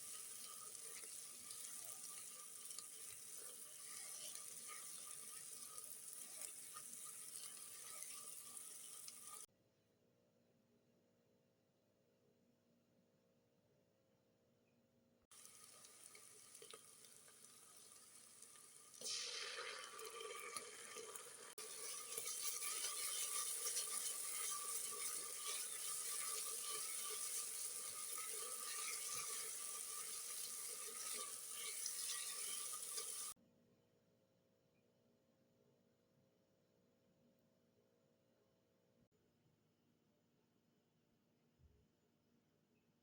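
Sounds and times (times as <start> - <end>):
food sizzling and bubbling in pot: 0.0 - 9.5, 15.3 - 33.4.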